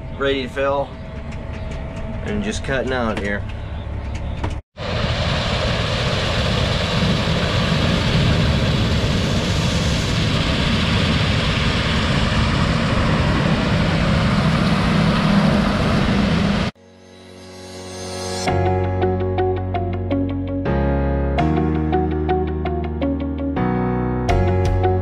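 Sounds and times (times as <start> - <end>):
machine running: 5.0 - 18.5.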